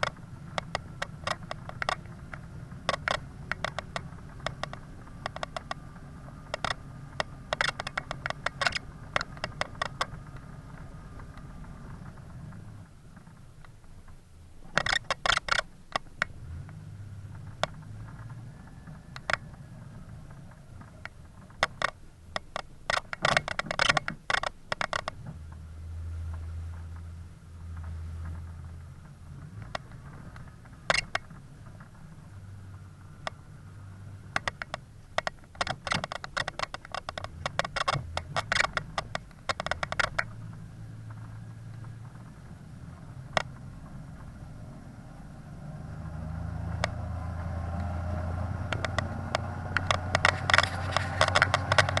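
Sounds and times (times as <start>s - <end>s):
rapid ticking and pattering: 0.0s - 16.4s, 27.8s - 44.6s
vehicle engine humming: 0.0s - 52.0s.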